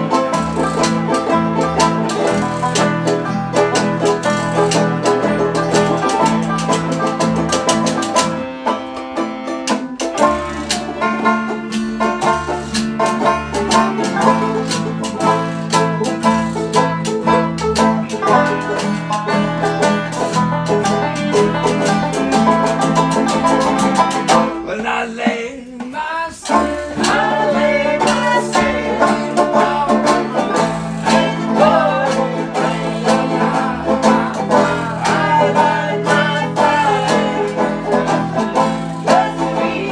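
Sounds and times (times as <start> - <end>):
guitar: 0.0 - 39.9
picked banjo: 0.0 - 39.9
string band playing bluegrass: 0.0 - 39.9.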